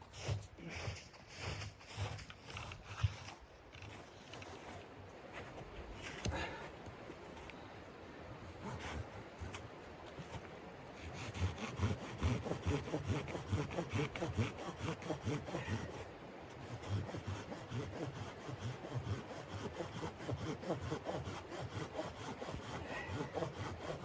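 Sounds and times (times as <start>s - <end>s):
hand saw cutting wood: 8.6s - 10.4s, 11.0s - 24.0s.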